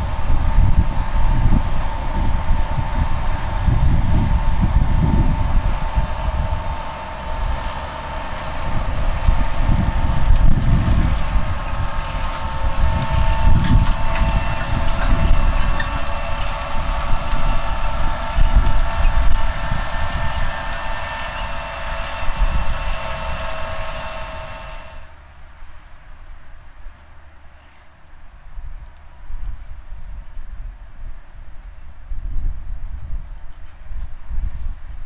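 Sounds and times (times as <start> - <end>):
tractor engine rumble: 0.0 - 25.2
steady high whine: 0.0 - 25.9.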